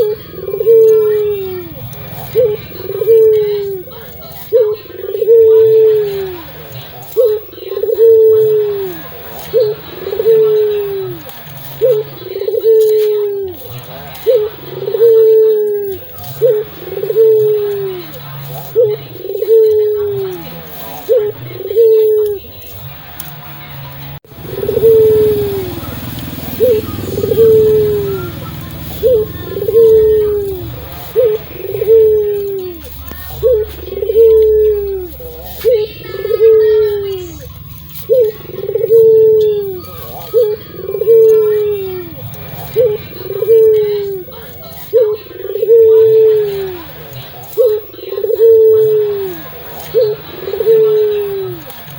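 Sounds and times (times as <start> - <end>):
dove cooing: 0.0 - 51.9.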